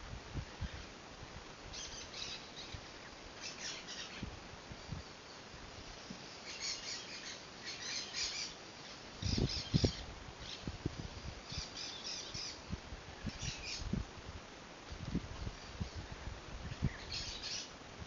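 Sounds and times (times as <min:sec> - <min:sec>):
birds chattering: 0:01.7 - 0:04.3, 0:06.2 - 0:10.7, 0:16.7 - 0:17.8.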